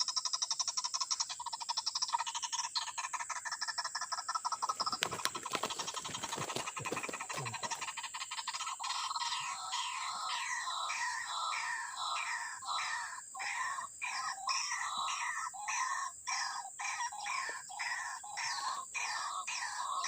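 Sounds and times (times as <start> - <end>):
waterhens calling: 2.7 - 20.0
low rustling and scuffling: 4.8 - 7.8.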